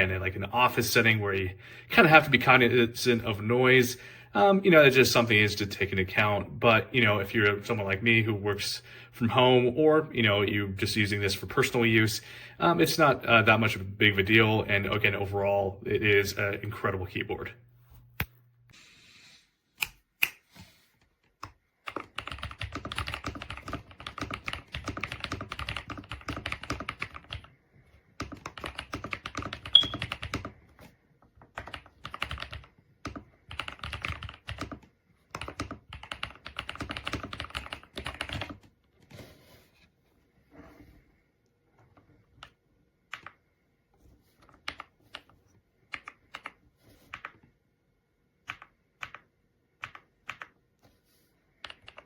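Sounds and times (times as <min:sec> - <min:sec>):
mechanical keyboard typing: 0:21.4 - 0:27.5, 0:28.2 - 0:30.6, 0:31.5 - 0:38.7, 0:45.9 - 0:47.4, 0:48.4 - 0:50.6, 0:51.6 - 0:52.0.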